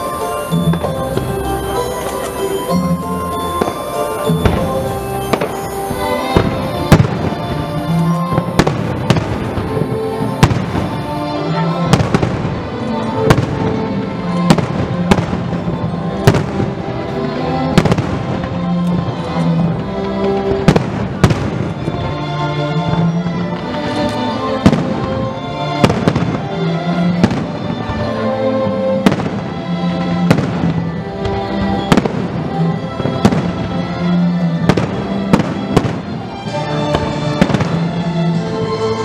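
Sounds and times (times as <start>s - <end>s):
music playing: 0.0s - 39.0s.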